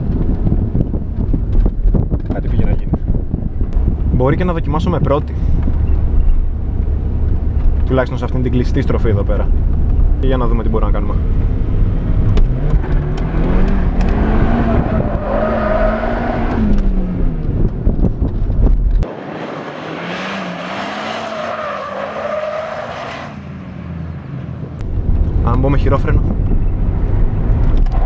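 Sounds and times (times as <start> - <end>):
tyres skidding: 5.1 - 17.5, 19.0 - 24.8
car engine revving: 5.9 - 18.0, 19.0 - 25.2.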